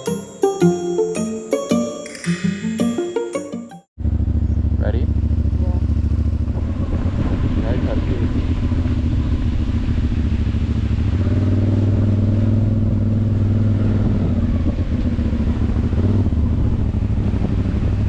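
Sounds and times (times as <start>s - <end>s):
motorcycle engine rumbling: 4.0s - 11.1s.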